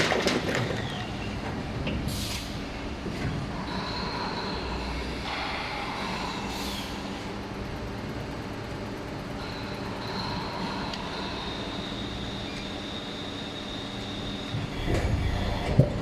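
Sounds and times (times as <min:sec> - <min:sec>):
machine humming: 0:03.6 - 0:16.0.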